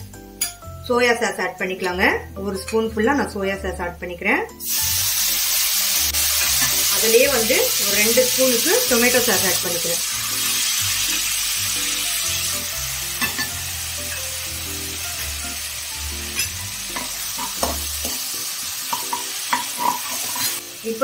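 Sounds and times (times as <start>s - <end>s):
food sizzling in hot oil: 4.6s - 21.0s.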